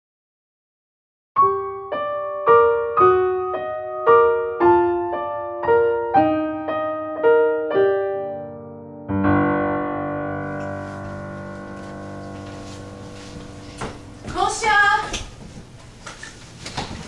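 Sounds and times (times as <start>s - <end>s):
solo piano music: 1.4s - 14.4s.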